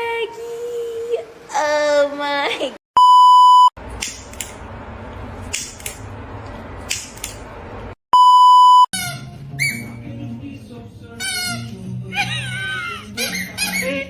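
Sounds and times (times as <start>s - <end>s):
electronic bleep tones: 3.0s - 3.7s, 8.2s - 8.9s.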